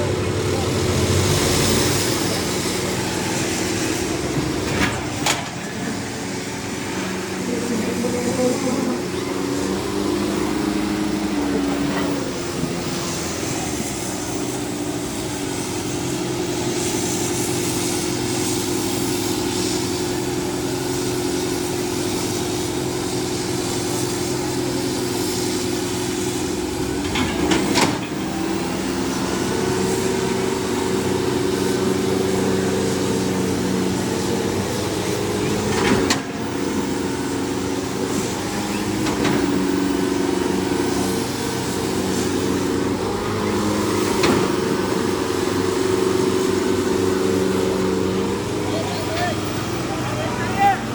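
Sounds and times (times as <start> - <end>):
background voices: 0.0 - 15.4
diesel tractor engine running: 0.0 - 50.9.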